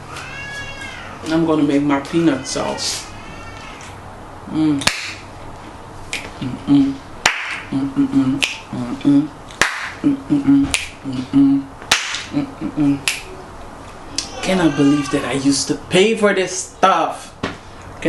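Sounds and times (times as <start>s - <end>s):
person humming a tune: 4.5s - 4.9s, 6.4s - 7.0s, 7.7s - 9.4s, 10.0s - 11.7s, 12.3s - 13.6s
fingers snapping: 4.8s - 5.2s, 7.2s - 7.6s, 8.4s - 8.6s, 9.5s - 10.0s, 10.7s - 11.0s, 11.9s - 12.4s, 13.0s - 13.3s.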